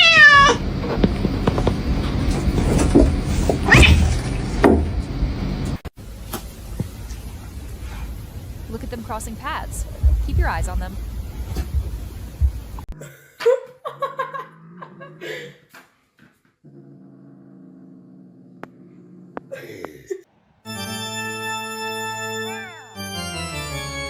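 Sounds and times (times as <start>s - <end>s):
pet crying: 0.0s - 0.6s
organ-like keyboard chords: 20.7s - 24.0s.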